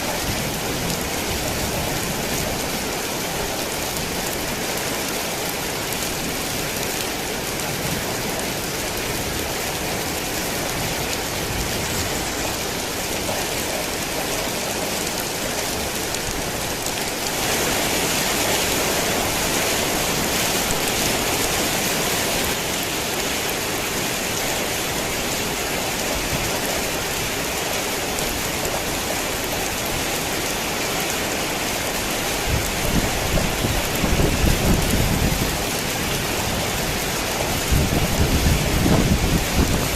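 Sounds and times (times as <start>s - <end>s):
heavy rain falling: 0.0s - 39.9s
thunder rumbling: 32.5s - 39.9s.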